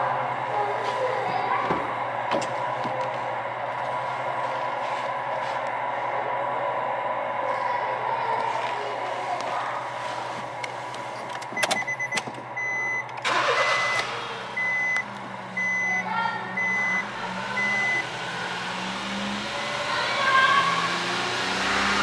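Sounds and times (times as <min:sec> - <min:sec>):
car engine starting and idling: 0:00.0 - 0:07.4, 0:08.0 - 0:22.0
dashboard warning chime beeping: 0:11.6 - 0:18.3.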